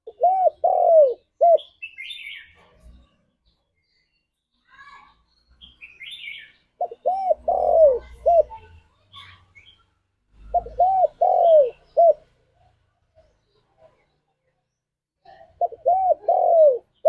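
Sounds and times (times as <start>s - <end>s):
dove cooing: 0.0s - 2.4s, 6.8s - 8.6s, 10.4s - 12.3s, 15.3s - 17.0s.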